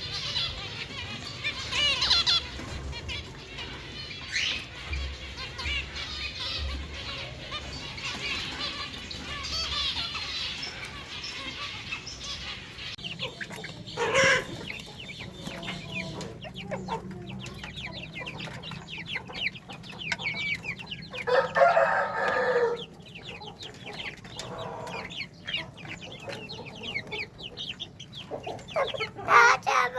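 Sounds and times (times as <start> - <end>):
caged birds chirping: 0.0 - 29.9.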